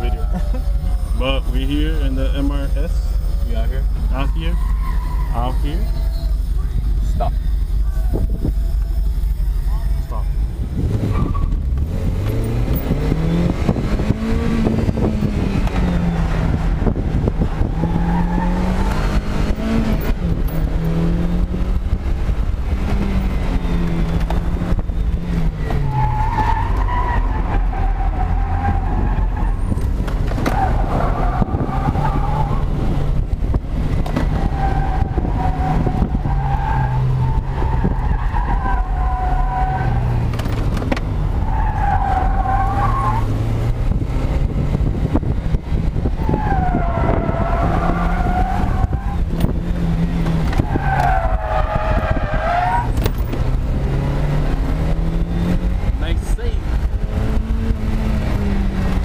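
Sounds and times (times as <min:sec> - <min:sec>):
car engine revving: 0:00.0 - 0:59.0
tyres squealing: 0:02.4 - 0:10.4, 0:50.2 - 0:53.0
wind buffeting on microphone: 0:12.8 - 0:20.8, 0:43.4 - 0:56.0.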